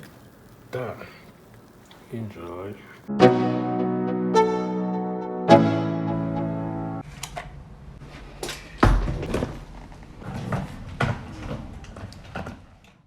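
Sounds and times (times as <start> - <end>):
piano music: 3.1 - 7.0.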